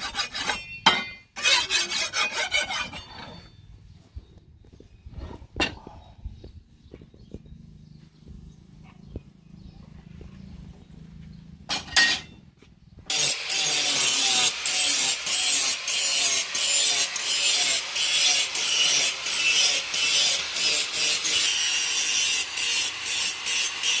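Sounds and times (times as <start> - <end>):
knife scraping on sharpener: 0.0 - 3.6
low hum: 3.0 - 13.1.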